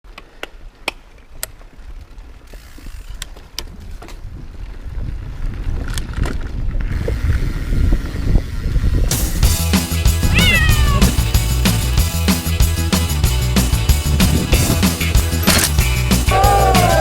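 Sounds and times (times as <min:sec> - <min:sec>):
bike clicks and rattles: 0:00.1 - 0:09.1, 0:14.3 - 0:16.0.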